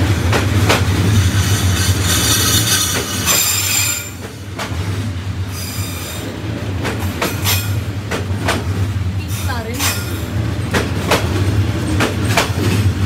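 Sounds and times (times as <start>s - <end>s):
train carriages rolling past: 0.0s - 13.0s
wheels squealing: 1.2s - 4.3s
sharp clacks: 9.8s - 12.9s.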